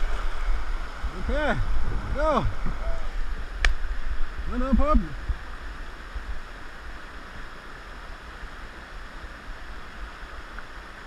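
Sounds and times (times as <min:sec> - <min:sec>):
low rumble: 0:00.0 - 0:05.5
flowing river water: 0:00.0 - 0:11.0.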